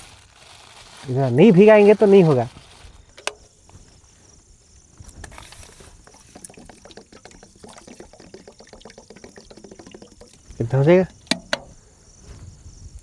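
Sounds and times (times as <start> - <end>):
lentils pattering into a pot: 0.0 - 3.0
water pouring: 5.3 - 11.6.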